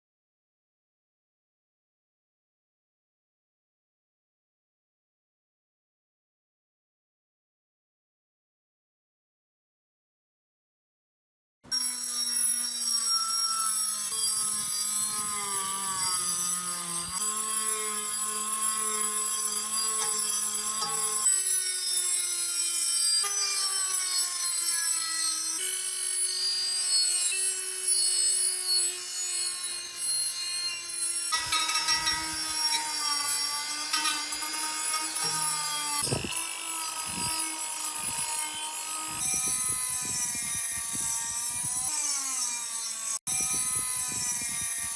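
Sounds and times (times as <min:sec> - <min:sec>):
power tool motor running: 0:11.8 - 0:44.9
tool hissing on metal: 0:12.7 - 0:44.9.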